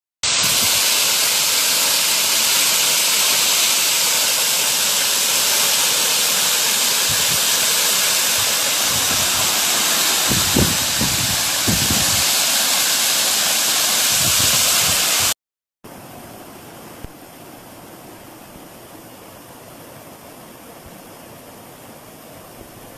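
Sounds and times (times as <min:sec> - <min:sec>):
waterfall rushing: 0:00.2 - 0:15.4.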